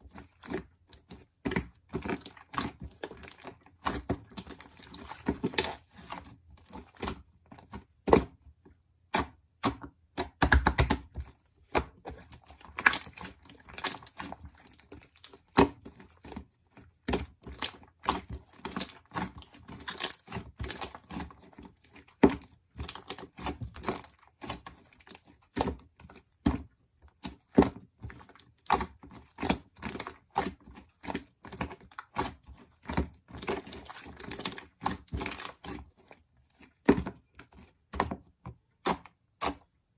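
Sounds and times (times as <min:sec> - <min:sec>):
crinkling and tearing: 0:12.1 - 0:16.4.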